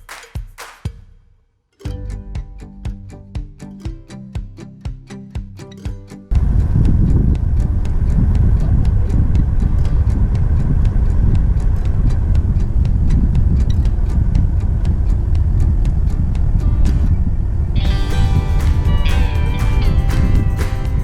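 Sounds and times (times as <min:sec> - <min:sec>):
vehicle rumbling: 0:06.3 - 0:21.0.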